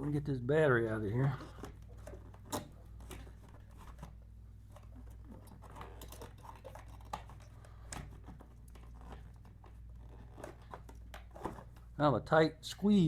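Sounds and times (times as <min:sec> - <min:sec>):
clicks and scrapes of battery: 0:01.4 - 0:11.8.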